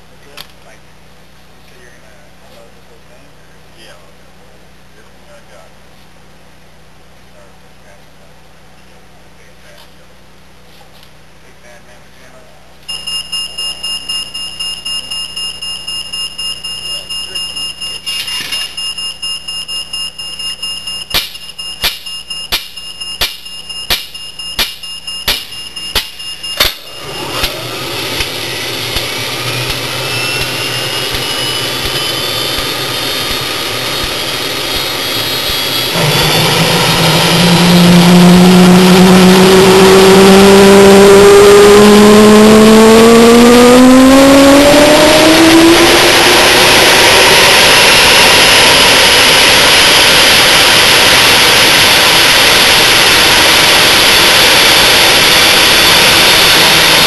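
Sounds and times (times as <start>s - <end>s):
jet engine whine and roar: 20.0s - 57.0s.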